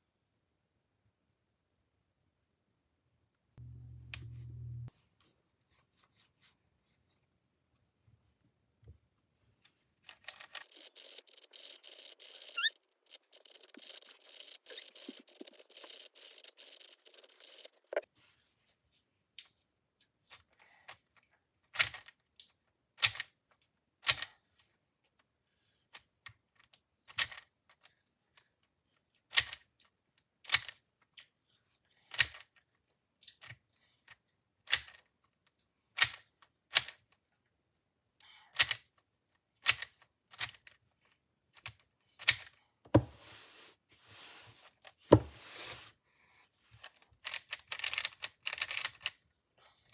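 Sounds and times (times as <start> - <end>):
cube turning and rubbing: 10.1 - 18.1, 43.0 - 46.0, 46.8 - 49.2
puzzle cube plastic clicks: 10.1 - 18.1, 46.8 - 49.2.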